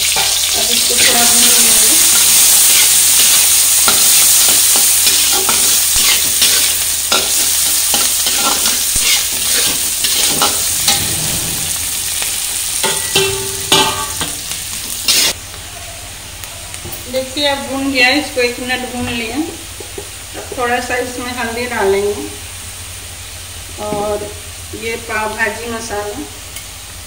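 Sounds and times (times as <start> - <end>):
metal spatula scraping pan: 0.0 - 15.4
onions sizzling in hot oil: 0.0 - 27.0.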